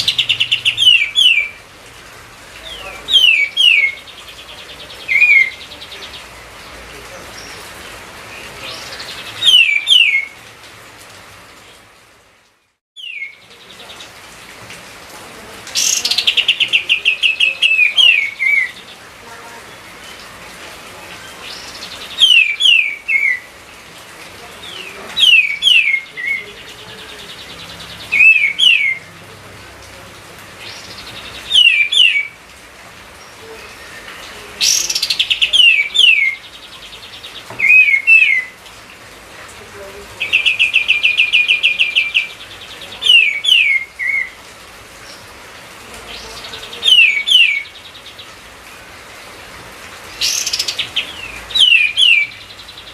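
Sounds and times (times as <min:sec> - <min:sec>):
bird singing whistles and trills: 0:00.0 - 0:01.6, 0:03.2 - 0:04.1, 0:05.0 - 0:05.7, 0:08.9 - 0:10.4, 0:13.0 - 0:13.4, 0:21.5 - 0:23.5, 0:25.2 - 0:26.4, 0:28.0 - 0:29.0, 0:30.7 - 0:32.4, 0:37.6 - 0:38.5, 0:46.8 - 0:47.7, 0:50.2 - 0:52.6.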